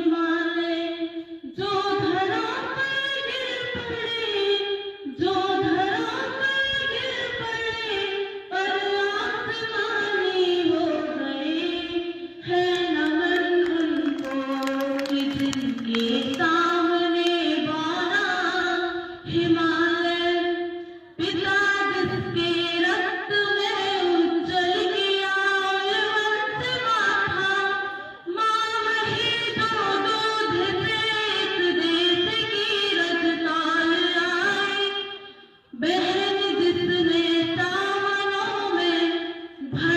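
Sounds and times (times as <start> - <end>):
girl singing: 21.2 - 35.0, 35.8 - 39.0.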